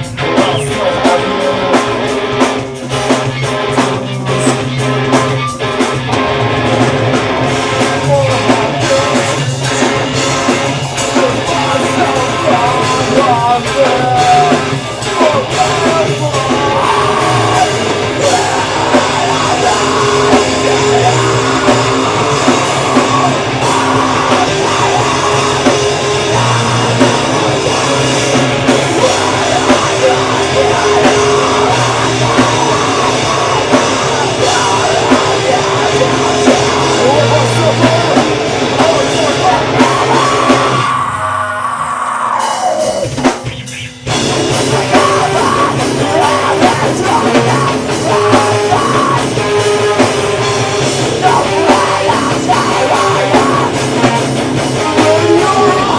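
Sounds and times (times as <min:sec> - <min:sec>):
live metal band playing: 0:00.0 - 0:55.9
screamed vocals: 0:10.9 - 0:44.0, 0:44.6 - 0:55.9.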